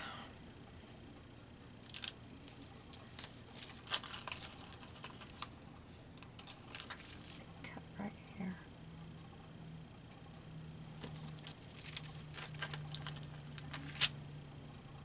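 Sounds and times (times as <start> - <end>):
paper tearing: 1.9 - 5.5, 6.4 - 7.5, 11.0 - 14.2.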